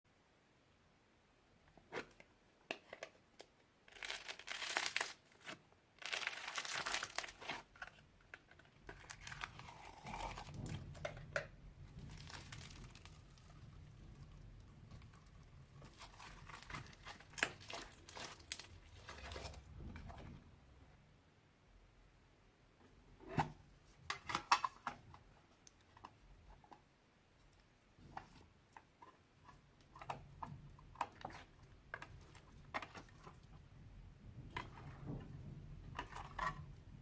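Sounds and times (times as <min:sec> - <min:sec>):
slime crackling and popping: 0:11.8 - 0:19.3.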